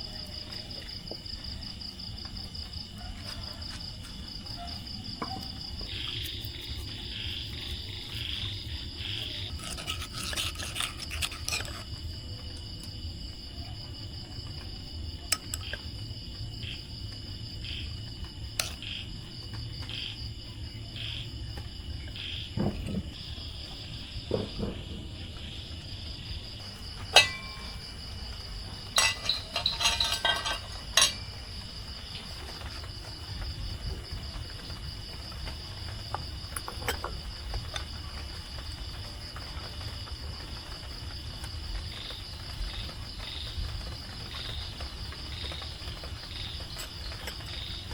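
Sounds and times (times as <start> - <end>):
insects calling: 0.0 - 47.9
tableware clinking: 27.0 - 31.4.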